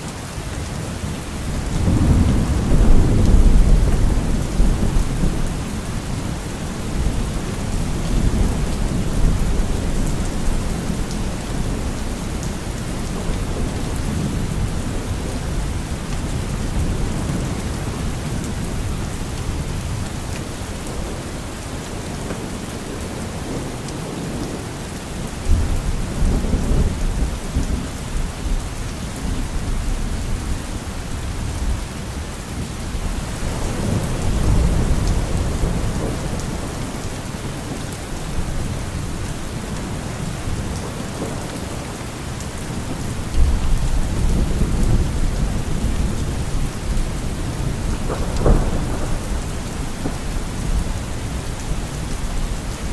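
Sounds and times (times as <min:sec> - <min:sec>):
steady rain: 0:00.0 - 0:52.9
thunder rolling: 0:01.5 - 0:12.0, 0:42.7 - 0:52.3.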